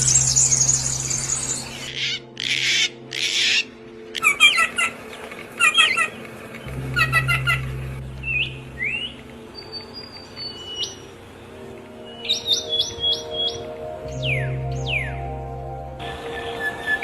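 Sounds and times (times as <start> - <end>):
songbirds chirping: 0.0 - 17.0
low steady hum: 6.2 - 12.0.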